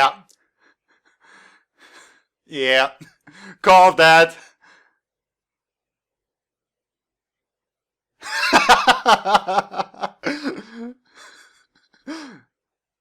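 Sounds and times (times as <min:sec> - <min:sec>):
man laughing: 0:08.2 - 0:12.4.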